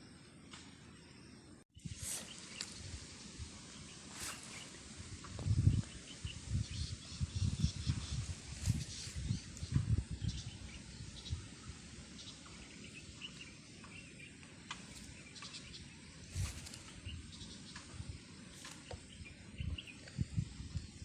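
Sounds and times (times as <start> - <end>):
faint bird chirps: 0.0 - 21.0
microphone handling rustles: 1.8 - 10.0, 14.8 - 17.4, 18.5 - 19.2.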